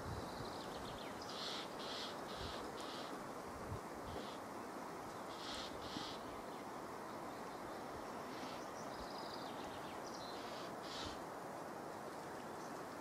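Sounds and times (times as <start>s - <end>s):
steady outdoor hiss: 0.0s - 13.0s
short harsh bird calls: 5.3s - 6.2s, 10.4s - 11.2s.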